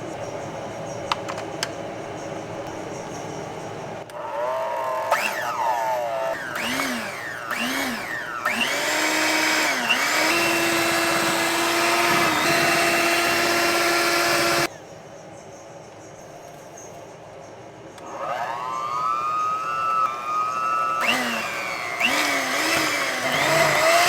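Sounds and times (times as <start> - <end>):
electric motor whining: 4.1 - 14.7, 18.0 - 24.0.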